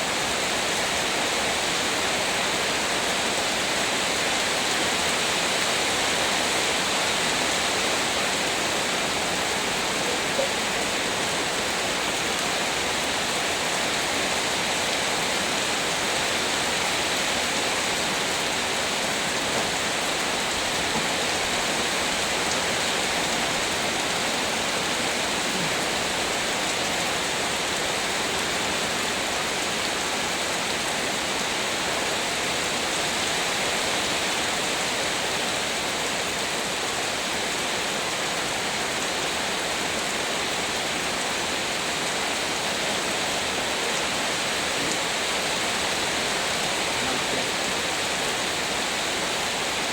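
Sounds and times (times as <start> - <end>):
heavy rain pouring: 0.0 - 49.9.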